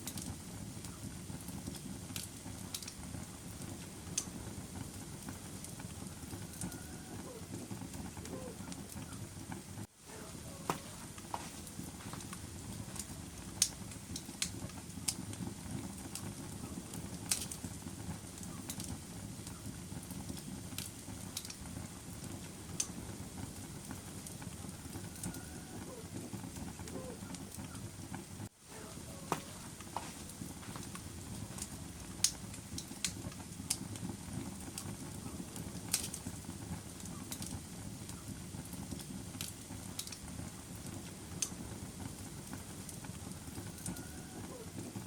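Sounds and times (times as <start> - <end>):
fire crackling and popping: 0.0 - 45.0
low rush of flame: 0.0 - 45.0.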